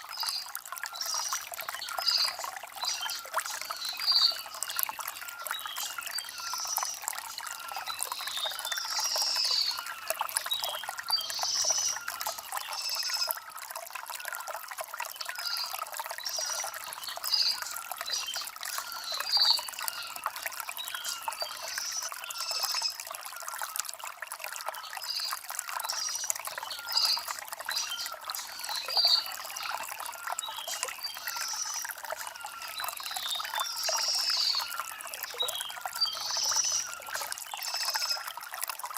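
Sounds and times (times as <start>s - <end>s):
stream trickling over stones: 0.0s - 38.9s
birds chirping: 15.2s - 23.0s, 24.8s - 38.2s.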